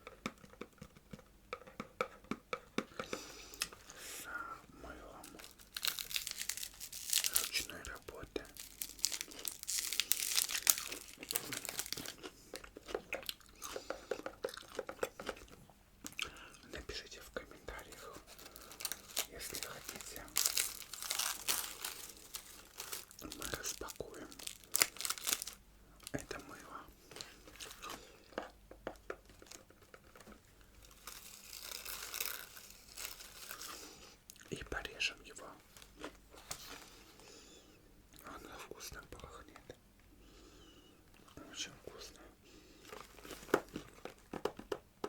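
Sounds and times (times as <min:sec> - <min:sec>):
snack packet crinkling: 0:05.0 - 0:34.6, 0:42.8 - 0:44.7
crunching: 0:05.1 - 0:16.4, 0:17.7 - 0:28.5, 0:29.2 - 0:34.5
chewing: 0:08.6 - 0:16.4.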